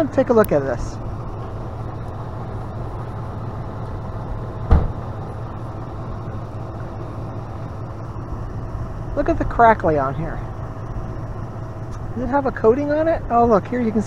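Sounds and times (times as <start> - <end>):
truck engine idling: 0.0 - 14.0
sharp thump: 4.6 - 5.1.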